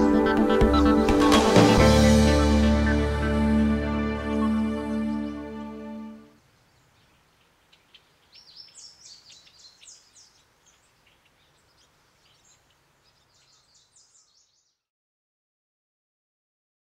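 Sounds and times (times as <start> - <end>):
bird chirping: 0.0 - 0.4, 6.5 - 14.9
faint steady hiss: 5.4 - 14.6.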